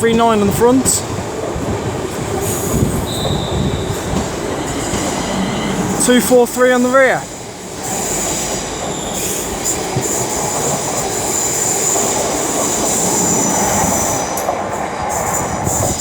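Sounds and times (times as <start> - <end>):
train running gear rumble: 0.0 - 16.0
high-pitched wheel squeal: 3.0 - 5.9.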